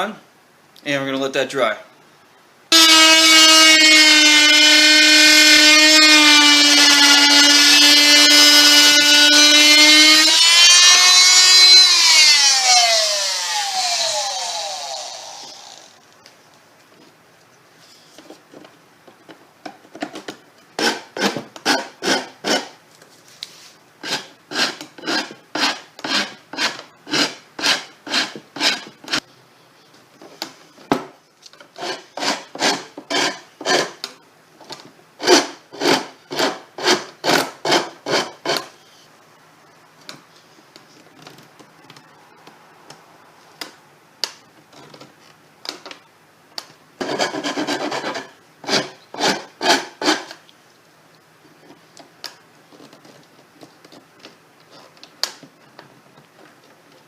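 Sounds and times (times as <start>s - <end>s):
hand rasp on wood: 20.8s - 22.7s, 24.0s - 29.2s, 31.8s - 34.0s, 47.0s - 50.3s.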